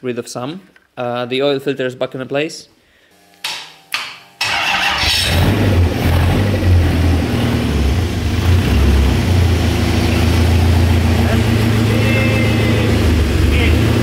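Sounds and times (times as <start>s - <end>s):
engine cranking and running: 4.4s - 14.0s.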